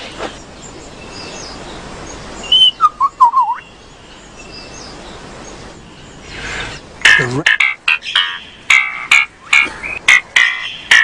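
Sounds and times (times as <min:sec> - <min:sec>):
faint bird calls: 0:00.0 - 0:11.0
lyrebird whistled song: 0:02.4 - 0:03.8, 0:07.6 - 0:11.0.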